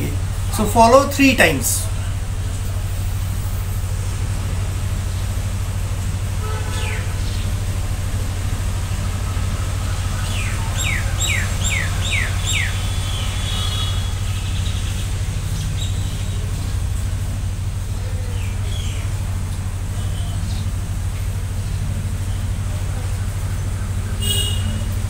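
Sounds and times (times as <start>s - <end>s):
bird whistling: 10.2s - 14.9s.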